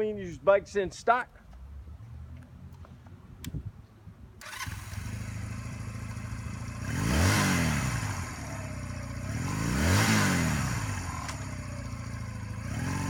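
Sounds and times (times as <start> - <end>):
motorcycle engine idling and revving: 4.4 - 13.0.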